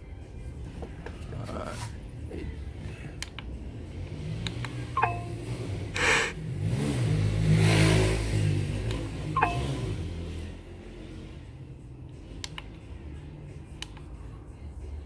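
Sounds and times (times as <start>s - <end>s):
engine-like sound rising in pitch: 4.2s - 11.4s
short falling electronic beeps: 5.0s - 5.5s, 9.4s - 10.0s.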